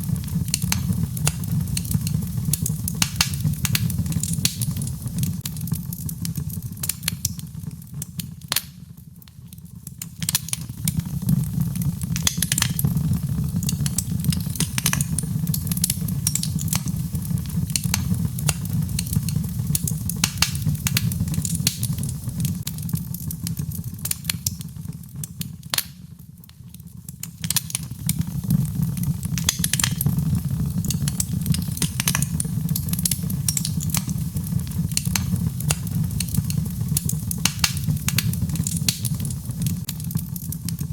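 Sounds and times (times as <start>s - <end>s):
fire crackling and popping: 0.0s - 40.9s
low rumble of flame: 0.0s - 40.9s.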